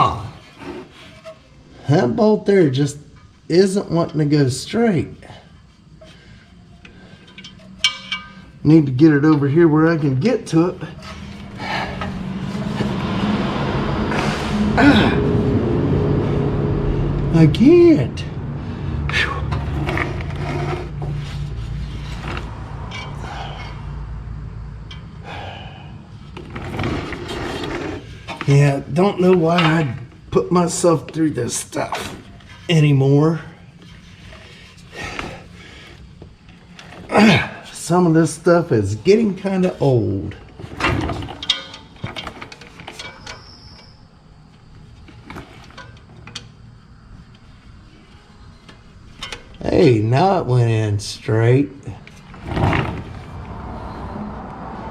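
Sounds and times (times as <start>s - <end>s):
steady low hum: 0.0s - 43.1s
hand tools on metal bolt: 6.8s - 9.5s.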